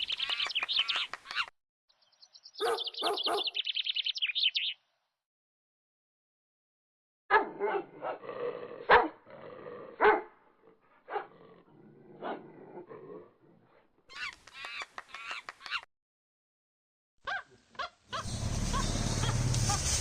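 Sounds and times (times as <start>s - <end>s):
animal barking calls: 2.6s - 3.6s, 17.3s - 20.0s.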